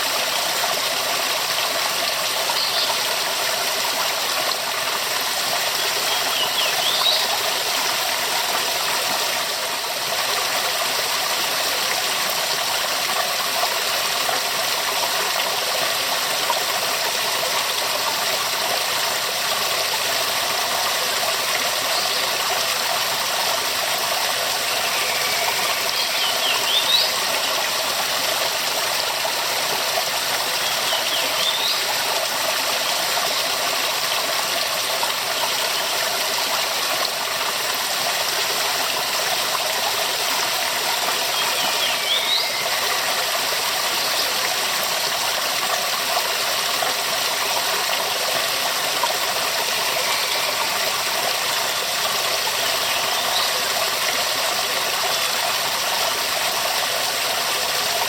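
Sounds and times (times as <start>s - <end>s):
waterfall rushing: 22.7s - 33.1s, 33.8s - 45.3s, 47.2s - 58.0s.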